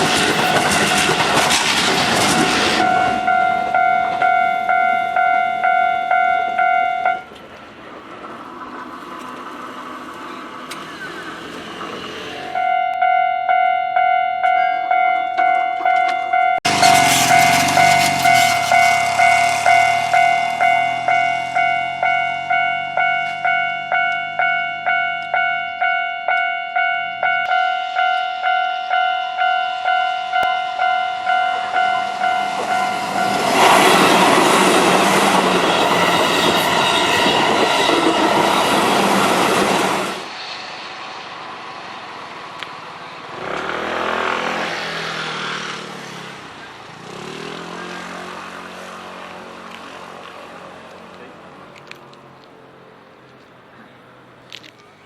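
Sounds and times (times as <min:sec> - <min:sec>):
train passing loudly: 0:00.0 - 0:55.0
level crossing bell dinging: 0:02.8 - 0:07.3, 0:12.5 - 0:34.1.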